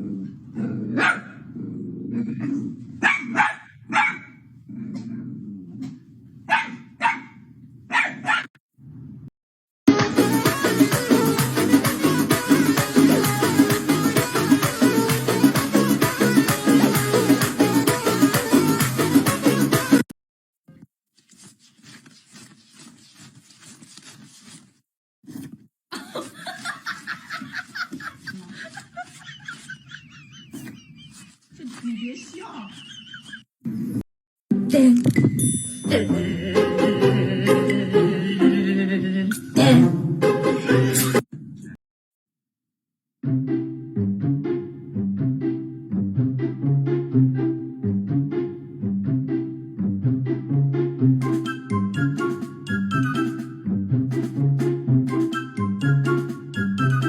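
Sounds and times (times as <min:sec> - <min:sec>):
dog growling: 0:00.0 - 0:03.0, 0:04.7 - 0:06.1
dog barking sharply: 0:01.0 - 0:01.4, 0:03.0 - 0:04.4, 0:06.5 - 0:08.5
person laughing: 0:25.9 - 0:33.4.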